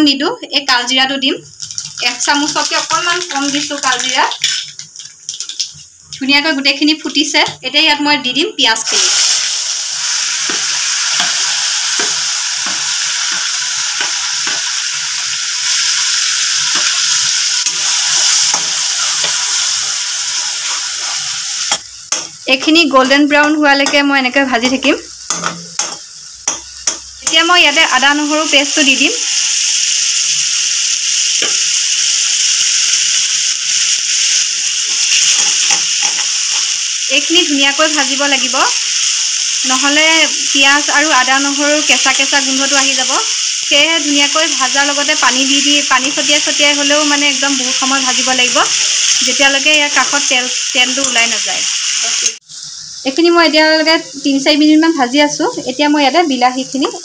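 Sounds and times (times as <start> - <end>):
onion paste sizzling in oil: 0.0 - 57.0
spatula stirring and scraping: 20.3 - 21.4.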